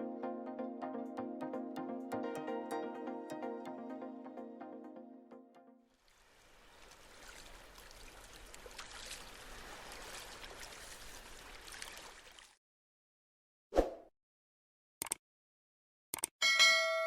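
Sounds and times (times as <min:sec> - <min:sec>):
sharp clicks: 0:15.0 - 0:15.2, 0:16.1 - 0:16.4.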